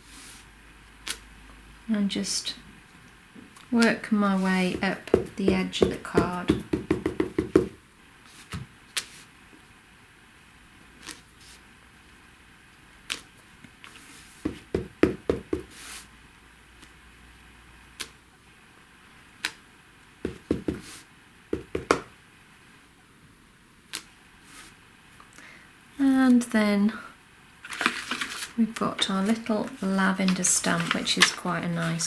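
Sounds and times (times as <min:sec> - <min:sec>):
stamp tapping on desk: 0:04.7 - 0:07.8, 0:21.6 - 0:22.1.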